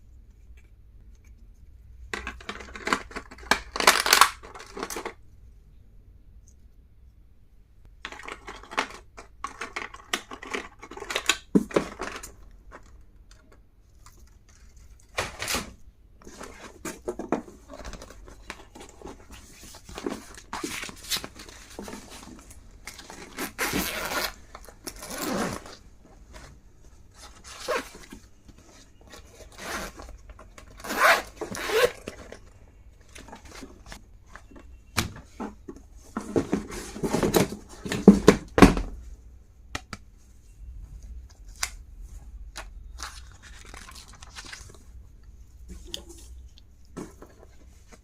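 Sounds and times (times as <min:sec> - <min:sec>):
packaging rustling and tearing: 0:02.8 - 0:05.2, 0:42.9 - 0:44.8.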